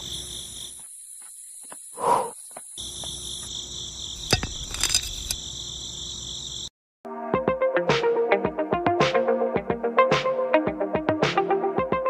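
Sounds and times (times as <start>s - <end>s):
crickets trilling: 0.0s - 6.7s
metal pin clicking: 4.2s - 5.4s.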